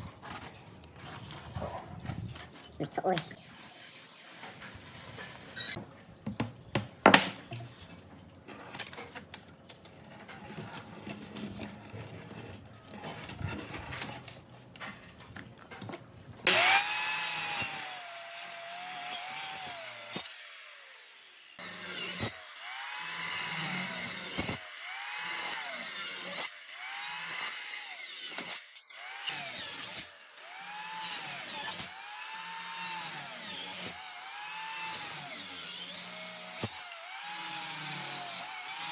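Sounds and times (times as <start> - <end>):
wood knocking and clicking: 6.2 - 7.6
power tool whining on wood: 16.5 - 38.9.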